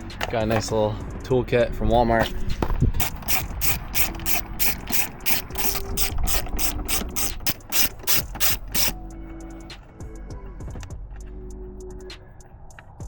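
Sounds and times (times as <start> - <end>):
ratchet wrench clicking: 3.0 - 9.0.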